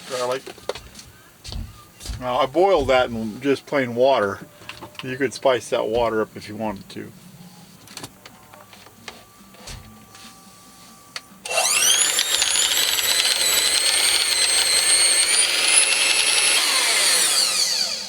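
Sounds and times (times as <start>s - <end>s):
kitchen appliance motor whine: 8.7s - 18.0s.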